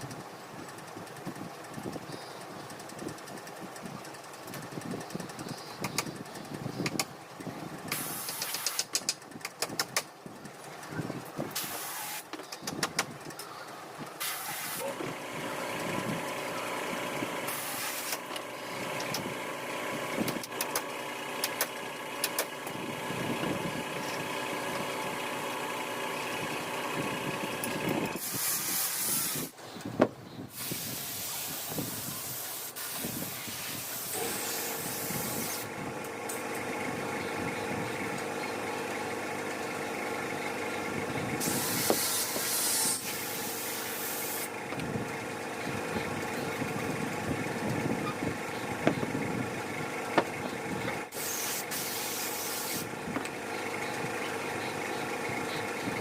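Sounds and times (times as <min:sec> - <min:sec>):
motor running steadily: 0:00.0 - 0:56.0
sharp clicks and knocks: 0:04.5 - 0:06.2, 0:06.8 - 0:07.1, 0:07.9 - 0:10.2, 0:12.3 - 0:13.5, 0:20.2 - 0:22.8
bursts of hissing air: 0:07.9 - 0:09.0, 0:11.5 - 0:12.3, 0:14.2 - 0:15.0, 0:17.4 - 0:19.2, 0:28.2 - 0:29.7, 0:30.5 - 0:35.7, 0:41.4 - 0:44.6, 0:51.1 - 0:52.9.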